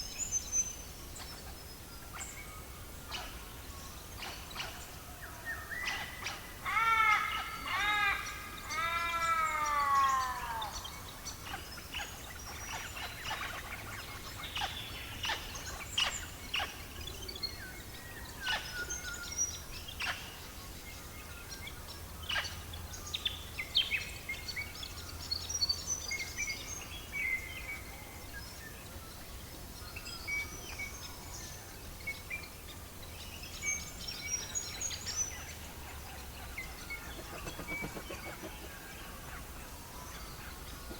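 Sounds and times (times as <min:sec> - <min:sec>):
bird calls: 0:00.0 - 0:40.9
birdsong: 0:00.0 - 0:40.9.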